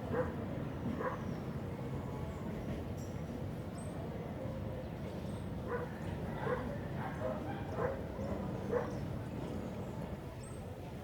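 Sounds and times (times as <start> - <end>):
dog barking: 0.1 - 0.3, 5.7 - 8.0.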